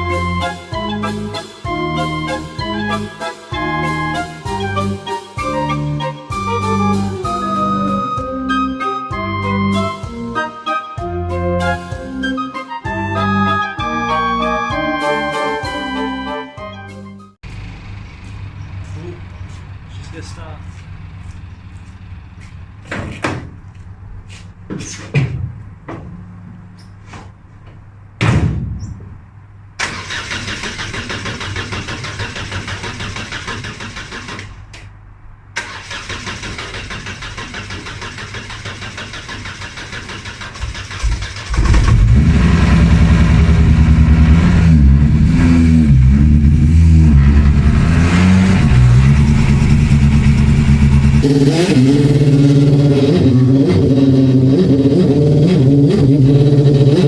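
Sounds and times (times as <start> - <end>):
car engine revving: 17.5 - 22.9, 35.6 - 57.0
thump: 24.7 - 26.0, 28.2 - 29.1
car engine cranking on starter: 29.8 - 34.9, 35.6 - 43.9.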